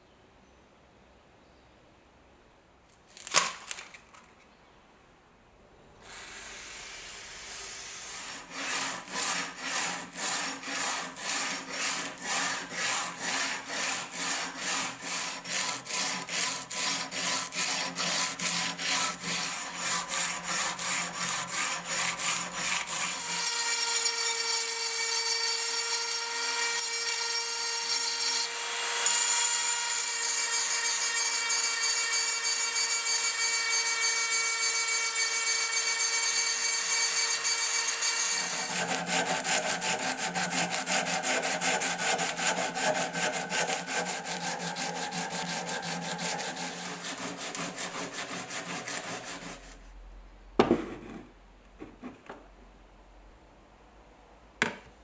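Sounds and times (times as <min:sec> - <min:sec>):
file strokes on steel: 0:06.1 - 0:50.0.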